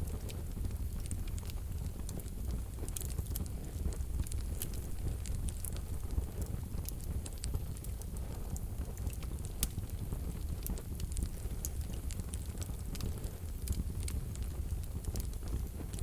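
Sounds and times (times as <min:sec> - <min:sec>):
low rumble of flames: 0:00.0 - 0:16.0
wood fire crackling: 0:00.0 - 0:16.0.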